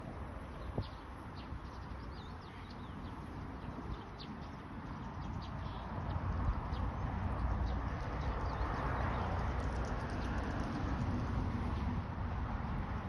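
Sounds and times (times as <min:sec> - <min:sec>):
small birds chirping: 0:00.0 - 0:10.8
rushing noise with low rumble: 0:06.2 - 0:13.0.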